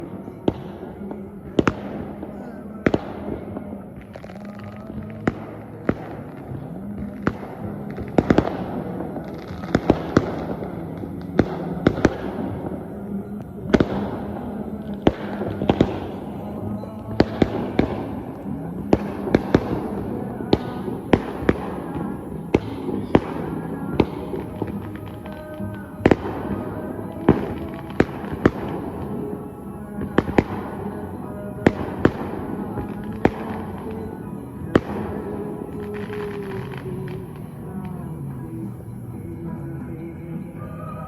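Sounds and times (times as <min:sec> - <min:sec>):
steady low drone: 0:00.0 - 0:41.0.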